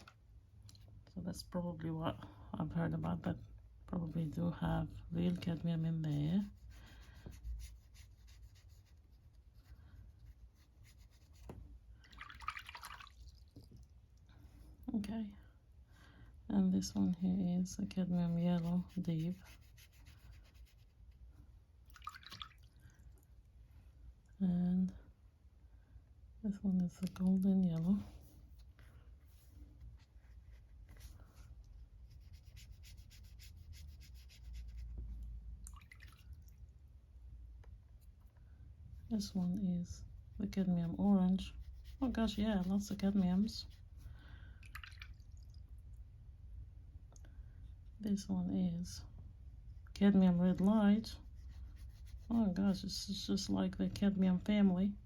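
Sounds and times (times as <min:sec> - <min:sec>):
paintbrush strokes on paper: 0:04.2 - 0:11.6, 0:16.8 - 0:21.2, 0:27.8 - 0:35.3, 0:39.1 - 0:44.1, 0:49.7 - 0:55.0.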